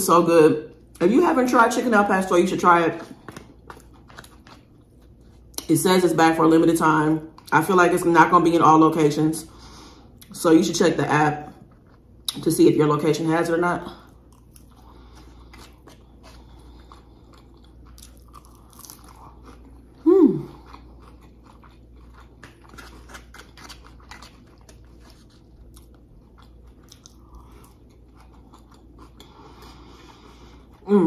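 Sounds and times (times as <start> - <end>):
close-up chewing with mouth clicks: 2.9 - 5.7, 14.0 - 30.9
person humming: 20.0 - 20.5.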